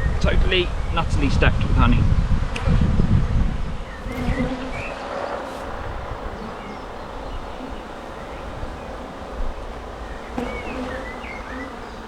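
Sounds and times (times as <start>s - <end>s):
honey bees buzzing: 3.6s - 12.0s.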